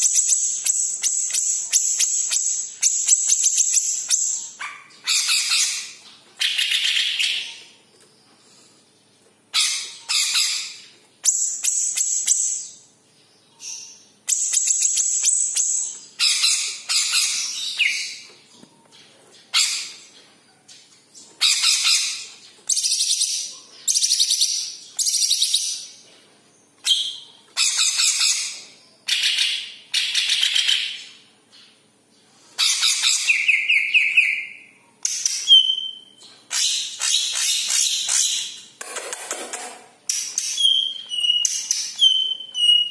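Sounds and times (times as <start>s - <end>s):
bird chattering and whistling: 32.6s - 38.6s, 40.1s - 42.9s.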